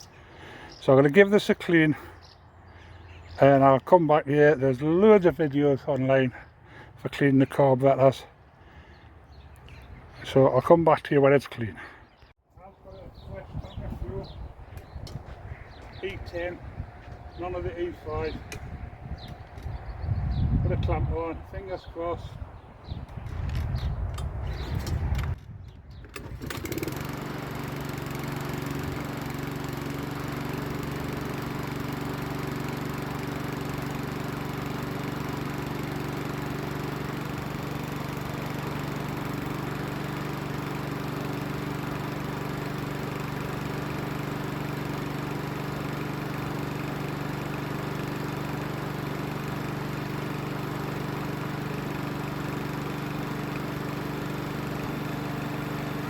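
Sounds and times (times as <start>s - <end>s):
lawnmower engine running: 12.6s - 22.3s, 26.0s - 56.0s.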